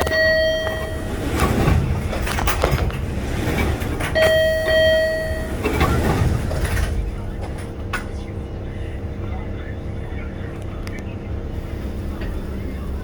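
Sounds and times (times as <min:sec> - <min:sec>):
subway door chime: 0:00.0 - 0:10.0
train car rumble and knocks: 0:00.0 - 0:13.0.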